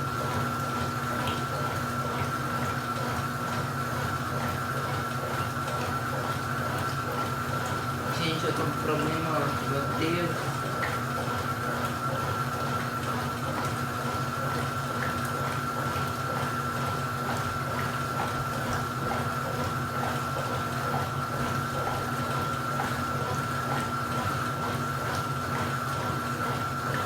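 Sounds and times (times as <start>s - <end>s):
drain pump humming and whining: 0.0s - 27.0s
water rushing: 8.1s - 10.9s.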